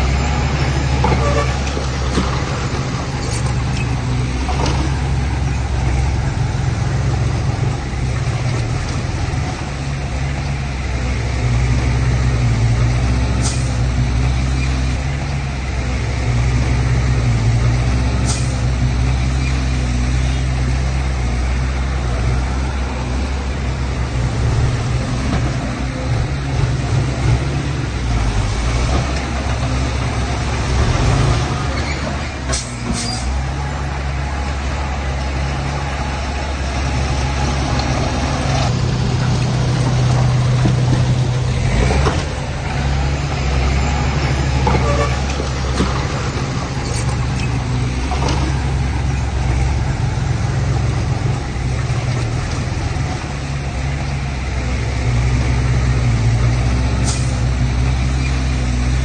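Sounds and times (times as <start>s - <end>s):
diesel earthmoving machinery running: 0.0s - 59.0s.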